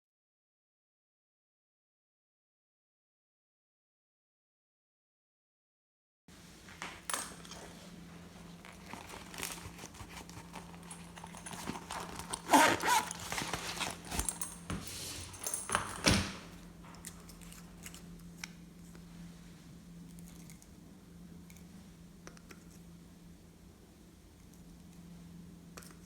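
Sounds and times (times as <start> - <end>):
steady low hum: 6.3 - 26.0.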